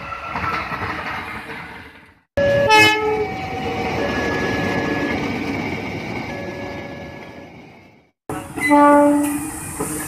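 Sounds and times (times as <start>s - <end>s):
freight train running past: 0.0s - 10.0s
diesel locomotive horn: 2.6s - 3.3s, 8.6s - 9.5s.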